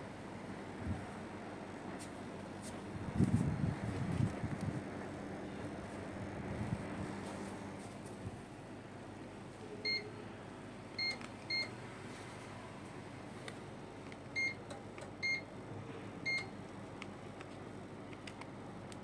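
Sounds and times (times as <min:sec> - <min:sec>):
steady low background noise: 0:00.0 - 0:04.0, 0:04.6 - 0:19.0
air conditioner beeps: 0:09.6 - 0:16.7.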